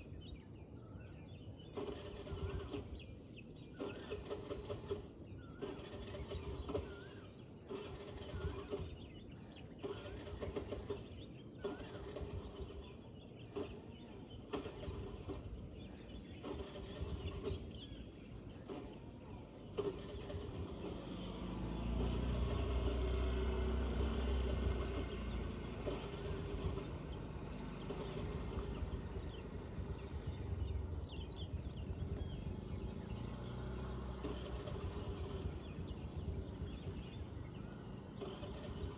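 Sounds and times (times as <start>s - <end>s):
small birds chirping: 0.0s - 38.9s
steady high-pitched hum: 0.0s - 38.9s.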